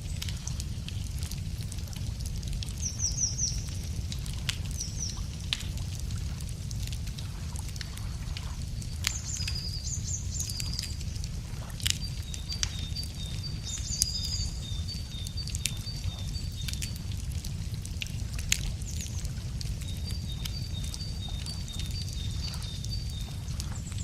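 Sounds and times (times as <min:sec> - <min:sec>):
low rumble of fire: 0:00.0 - 0:24.0
wood fire crackling: 0:00.0 - 0:24.0
songbirds singing: 0:02.7 - 0:05.5, 0:08.6 - 0:17.5, 0:18.4 - 0:24.0.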